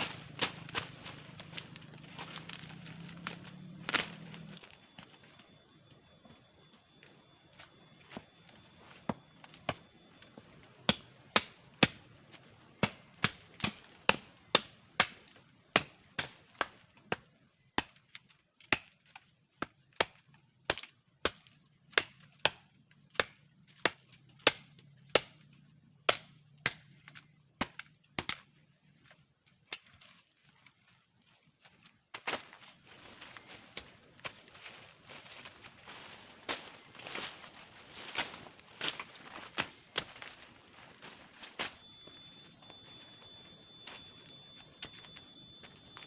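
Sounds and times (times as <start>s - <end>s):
blade chopping wood: 12.8s - 25.4s, 26.0s - 28.5s.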